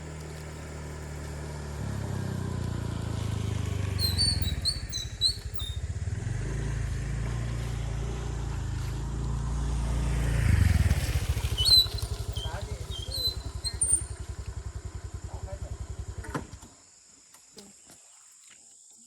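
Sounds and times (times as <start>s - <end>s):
small engine running: 0.0s - 16.7s
bird chirping: 4.0s - 5.9s, 11.4s - 14.2s.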